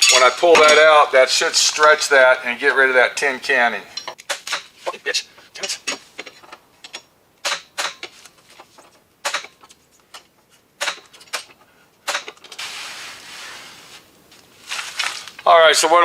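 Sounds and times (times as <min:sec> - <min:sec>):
steady hiss: 0:12.4 - 0:15.9.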